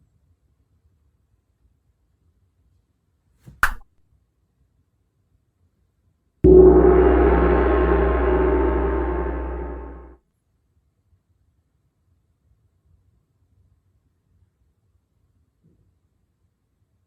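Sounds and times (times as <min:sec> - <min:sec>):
deep hum: 0:06.5 - 0:10.2
resonant metallic strike ringing: 0:06.5 - 0:10.2.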